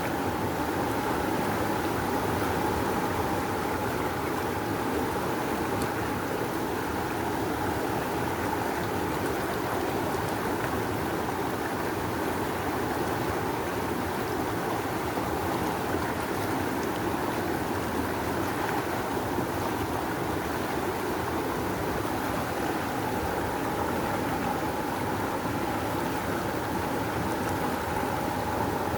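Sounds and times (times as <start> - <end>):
river water rushing: 9.1 - 28.9.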